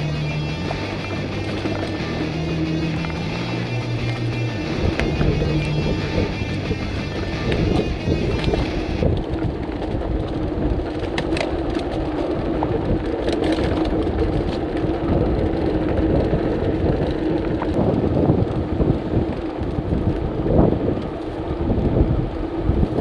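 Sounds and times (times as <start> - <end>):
steady low hum: 0.0 - 9.2
wind rumbling on microphone: 0.0 - 23.0.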